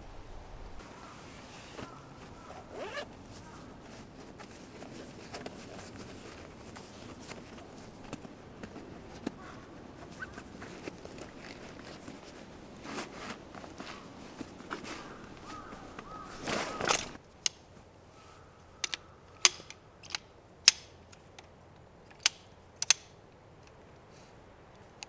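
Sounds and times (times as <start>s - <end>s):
camping gear rustling and clicking: 0.1s - 25.0s
zip-like rasp: 1.8s - 3.1s.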